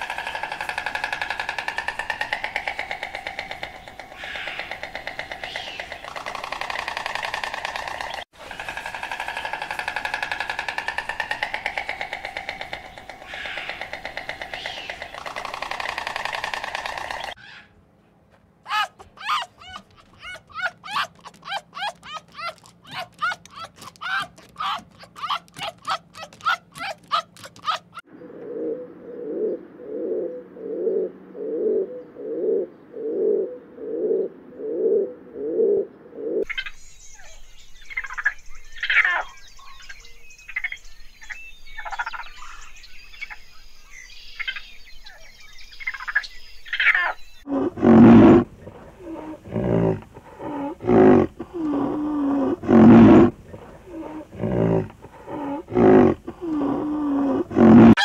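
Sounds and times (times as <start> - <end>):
pigeons cooing: 0.0 - 17.4, 18.7 - 36.5, 46.8 - 58.0
raccoons chittering and squealing: 0.0 - 17.7, 18.7 - 28.1, 36.4 - 43.4, 44.4 - 58.0.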